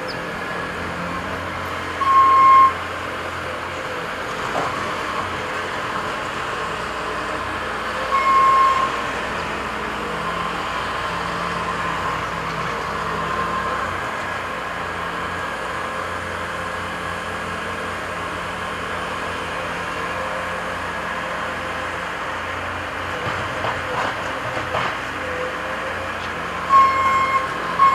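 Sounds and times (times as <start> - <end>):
heavy machinery diesel engines: 0.0 - 27.9
reversing alarm beep: 2.0 - 2.8, 8.1 - 9.0, 26.7 - 27.9.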